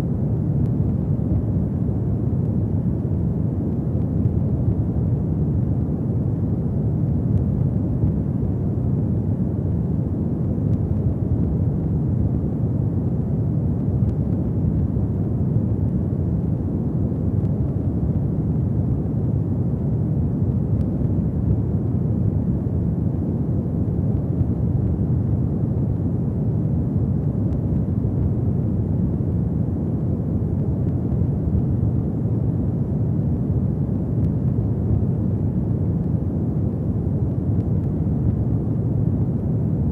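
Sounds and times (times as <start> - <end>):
fire burning with low rumble: 0.0 - 39.9.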